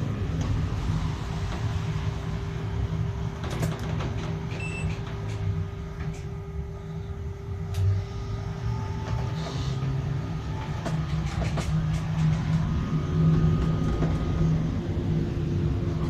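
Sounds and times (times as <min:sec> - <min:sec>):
steady hum: 0:00.0 - 0:16.0
vehicle rumble from inside: 0:00.0 - 0:16.0.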